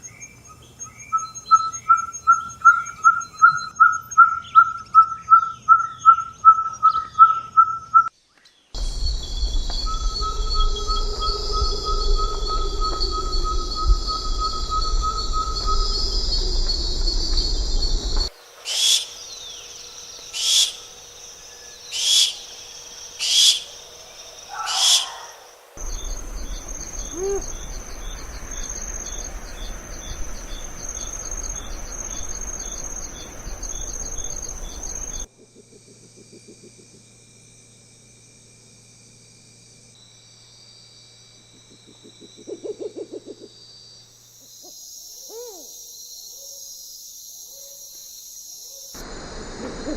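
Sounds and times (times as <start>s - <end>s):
insects ticking chorus: 0.0s - 8.2s, 8.8s - 49.9s
low pulsed bird call: 0.8s - 8.1s, 8.8s - 19.6s, 24.5s - 35.3s, 44.6s - 45.8s
loud high bird calls: 8.8s - 35.3s, 44.6s - 45.8s.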